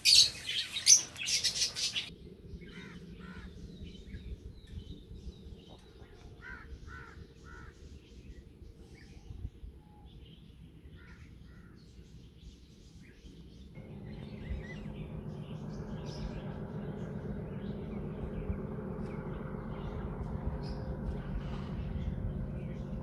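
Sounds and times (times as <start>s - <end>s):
birds chirping: 0.0s - 23.0s
crows cawing: 2.7s - 3.6s, 6.4s - 7.8s
approaching train rumble: 13.6s - 23.0s.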